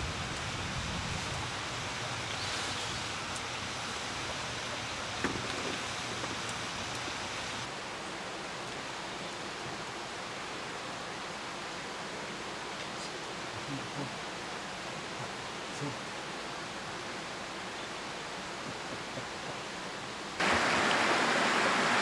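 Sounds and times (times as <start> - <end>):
stream rushing: 0.0 - 22.0.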